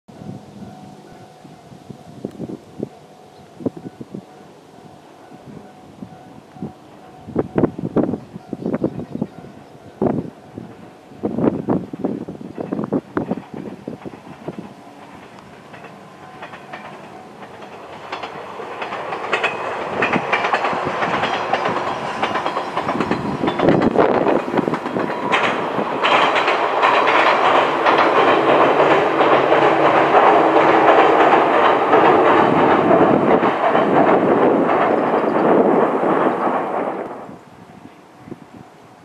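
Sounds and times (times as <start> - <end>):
electric train passing: 0.1 - 39.0
wheels clicking over rail joints: 6.4 - 37.4.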